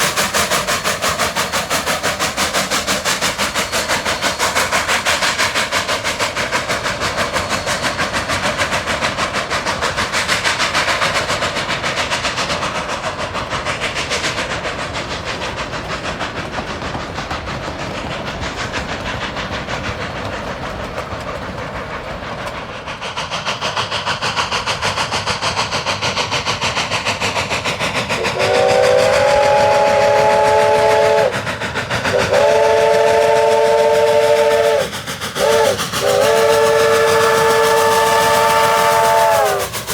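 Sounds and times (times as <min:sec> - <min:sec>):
steam whistle blasts: 0:28.2 - 0:31.4, 0:32.1 - 0:39.9.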